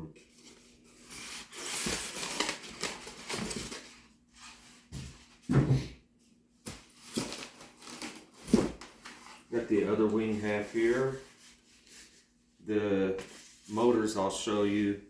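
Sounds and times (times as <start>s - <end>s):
foam parts rustling in box: 0.3s - 5.4s, 6.6s - 9.5s.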